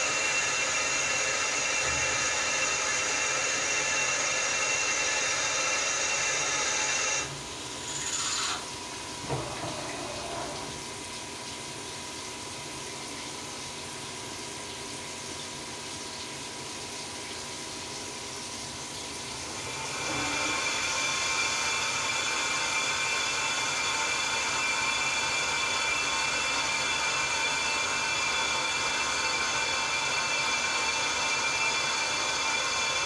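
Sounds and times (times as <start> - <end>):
milling machine whine: 0.0 - 11.0, 19.3 - 33.0.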